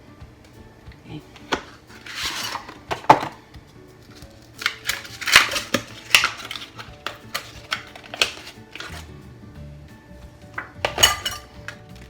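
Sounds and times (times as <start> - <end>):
soft background music: 0.0 - 12.0
utensils clinking against dishes: 1.3 - 3.4, 4.6 - 9.0, 10.6 - 12.0
utensil scraping: 1.4 - 3.4, 4.0 - 9.1.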